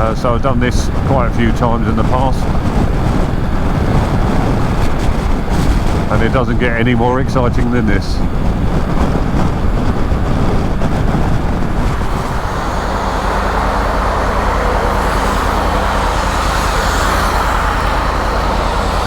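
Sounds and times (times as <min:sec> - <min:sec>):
wind and road noise: 0:00.0 - 0:19.0
motorcycle engine: 0:08.2 - 0:19.0.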